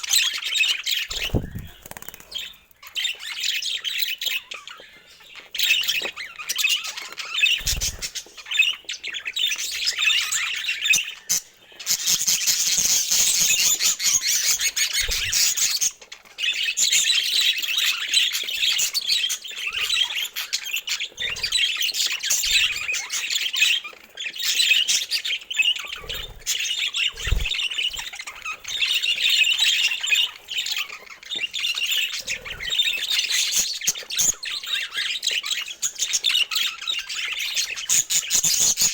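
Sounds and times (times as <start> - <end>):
budgerigars chattering: 0.0 - 38.9
soft low thumps: 1.2 - 1.8.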